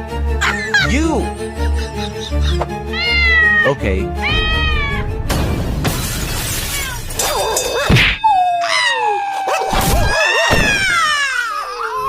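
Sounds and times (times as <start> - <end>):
sharp whack: 7.8 - 8.2.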